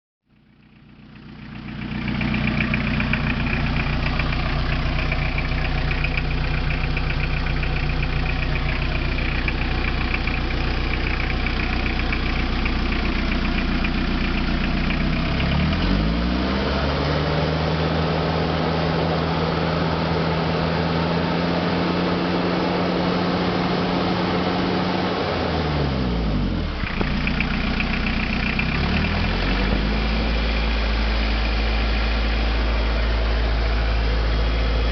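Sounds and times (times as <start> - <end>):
diesel engine clattering: 1.2 - 16.2, 26.4 - 34.9.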